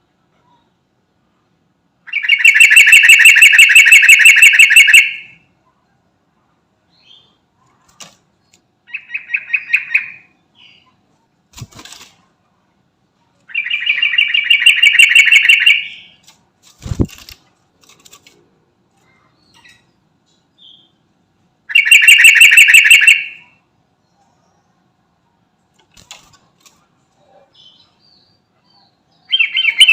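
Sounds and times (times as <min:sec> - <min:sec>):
bird singing fast repeated notes: 0:02.1 - 0:05.4, 0:08.8 - 0:11.0, 0:13.5 - 0:16.2, 0:21.7 - 0:23.6, 0:27.7 - 0:29.9.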